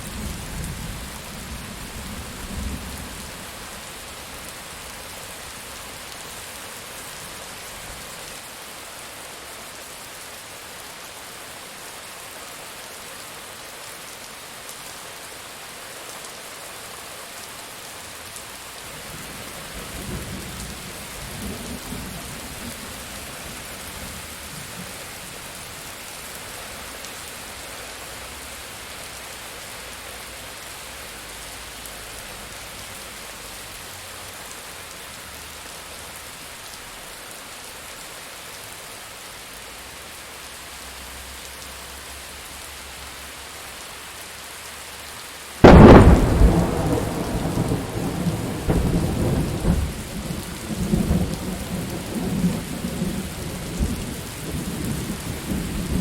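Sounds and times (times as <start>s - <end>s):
rain falling: 0.0s - 56.0s
thunderclap and rumbling thunder: 45.6s - 56.0s.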